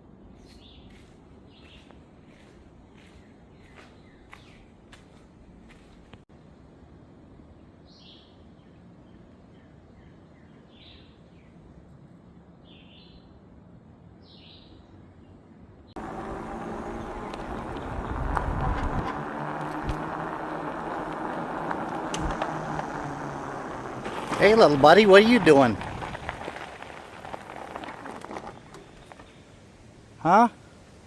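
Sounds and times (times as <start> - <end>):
loud rumbling with low hum: 16.0 - 29.3.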